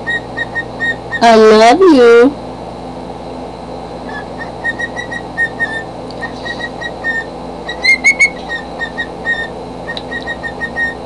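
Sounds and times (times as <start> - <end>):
cockatiel whistling chirps: 0.0 - 1.2, 4.1 - 11.0.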